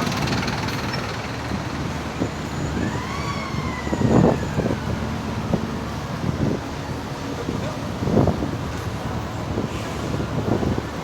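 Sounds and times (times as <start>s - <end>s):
road traffic noise: 0.0s - 11.0s
emergency siren wailing: 1.9s - 6.5s.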